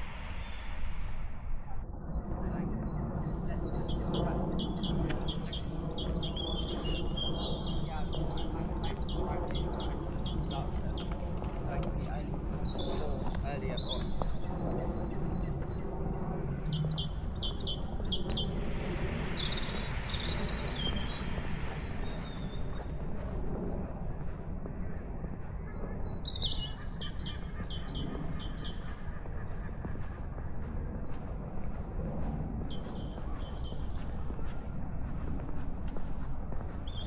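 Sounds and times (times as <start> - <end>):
soft rush of noise: 0.0 - 1.8, 18.8 - 25.6
low outdoor rumble: 0.0 - 37.0
small songbirds chirping: 3.4 - 23.3, 25.3 - 30.2, 31.0 - 34.4, 35.9 - 37.0.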